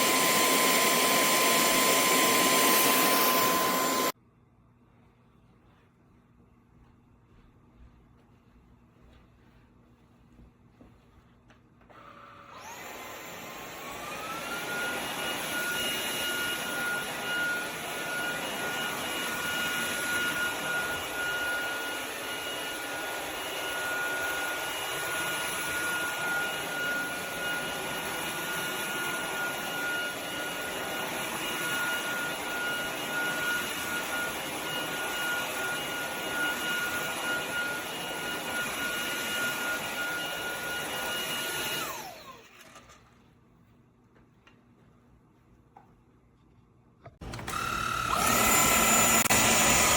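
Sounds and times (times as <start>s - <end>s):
stick vacuum motor whining: 0.0s - 4.2s, 11.9s - 43.1s, 47.2s - 49.9s.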